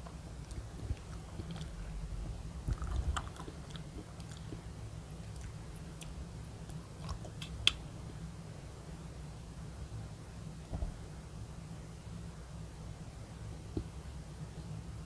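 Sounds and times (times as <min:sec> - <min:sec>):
chewing soft candy: 0:00.4 - 0:01.9, 0:02.6 - 0:07.8.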